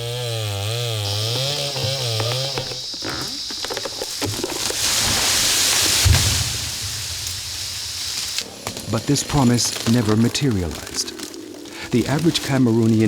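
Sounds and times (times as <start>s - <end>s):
chainsaw cutting: 0.0s - 6.0s, 8.2s - 13.0s
low thud: 5.9s - 8.1s.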